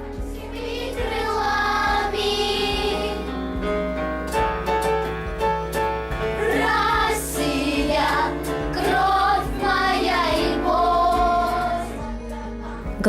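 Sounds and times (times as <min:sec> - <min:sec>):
instrumental backing track: 0:00.0 - 0:13.0
children singing: 0:00.2 - 0:03.4, 0:06.3 - 0:13.0.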